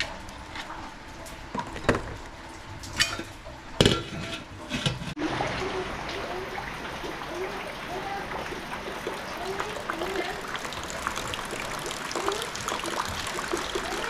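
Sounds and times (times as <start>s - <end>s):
rain hissing: 5.2s - 14.0s.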